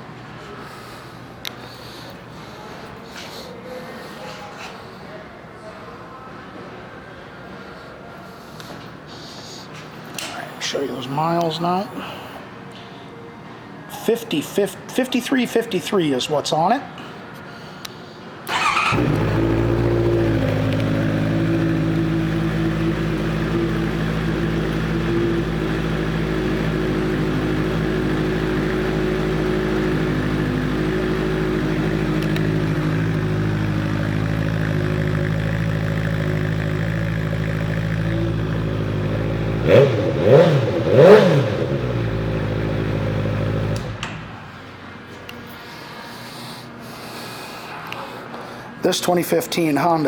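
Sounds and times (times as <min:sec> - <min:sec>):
engine revving: 0:18.5 - 0:44.0
motorcycle engine idling: 0:18.5 - 0:44.0.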